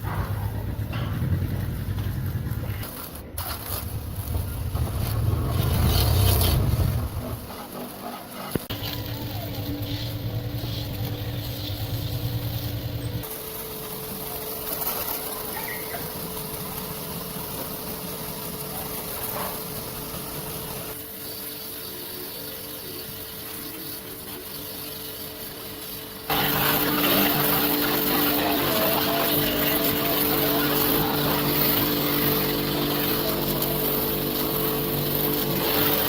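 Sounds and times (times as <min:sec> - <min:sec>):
steady machine hum: 0:06.6 - 0:36.0.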